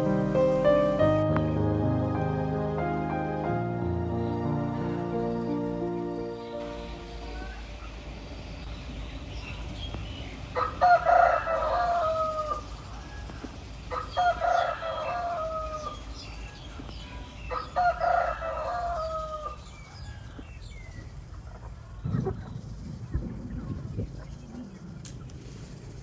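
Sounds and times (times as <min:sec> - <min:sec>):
rooster crowing: 0:10.6 - 0:20.5.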